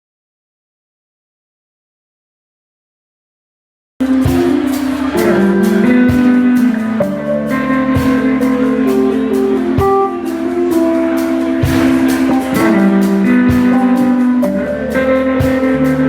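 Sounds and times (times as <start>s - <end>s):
blues-rock band playing: 4.0s - 16.0s
drum beat: 4.0s - 16.0s
electric guitar: 4.0s - 16.0s.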